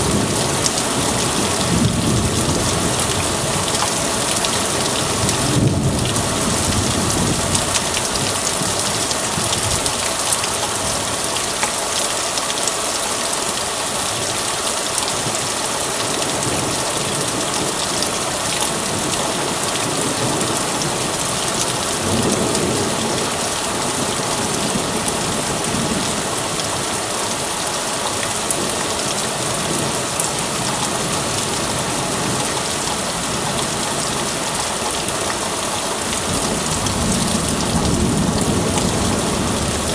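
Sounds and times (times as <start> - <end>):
thunder rumbles: 0.0 - 9.9, 36.1 - 39.9
heavy rain hissing: 0.0 - 39.9.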